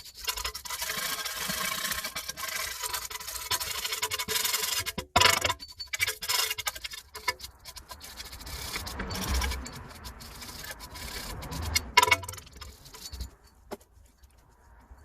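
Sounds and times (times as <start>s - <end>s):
metal parts clicking and tapping: 0.0s - 15.0s
metal tools scraping: 0.0s - 15.0s.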